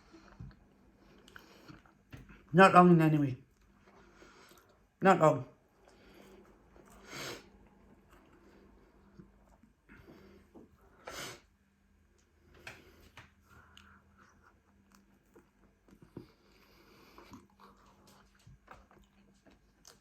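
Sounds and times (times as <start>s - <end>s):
chewing food: 0.1s - 2.4s, 5.8s - 9.7s, 13.4s - 20.0s.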